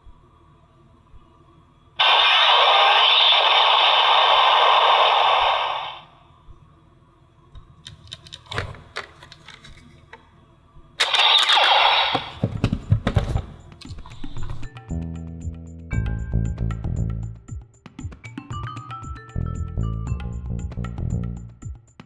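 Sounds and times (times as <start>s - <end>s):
toy gun electronic blasts: 2.0s - 6.1s, 11.0s - 12.4s
sharp plastic clicks: 7.9s - 10.2s, 11.0s - 12.4s.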